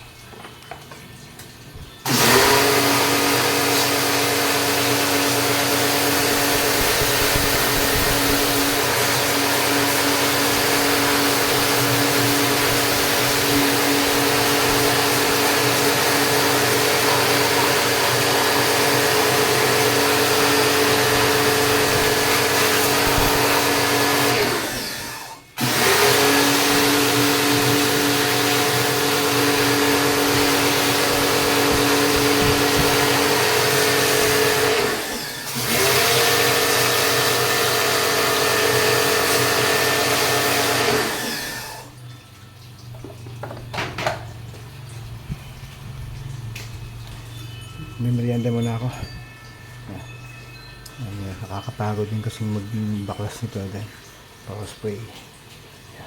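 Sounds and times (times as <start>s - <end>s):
small electric motor running: 5.7s - 41.9s.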